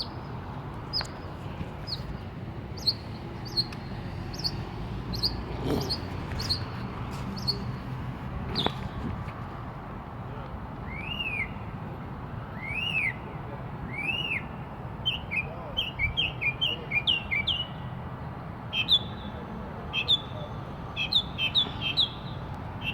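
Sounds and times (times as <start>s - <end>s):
bird singing: 2.8s - 7.8s, 13.9s - 17.9s, 18.7s - 22.9s.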